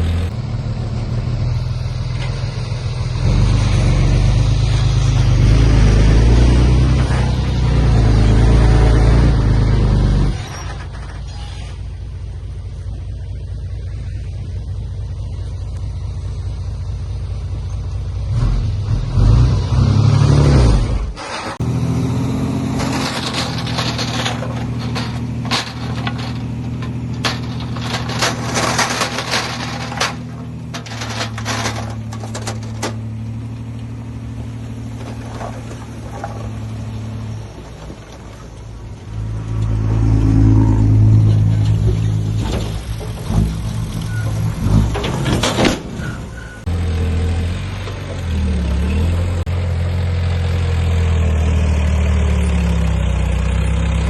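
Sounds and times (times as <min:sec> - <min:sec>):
heavy machinery diesel engine: 0:00.0 - 0:54.0
clattering knocks: 0:22.6 - 0:33.7, 0:34.8 - 0:38.7.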